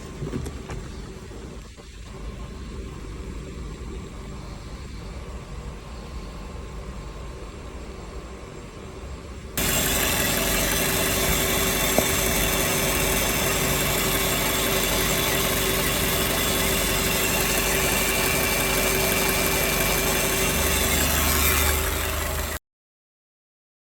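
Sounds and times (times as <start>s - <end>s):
car engine idling: 9.6s - 22.6s
whining tones: 9.6s - 22.6s.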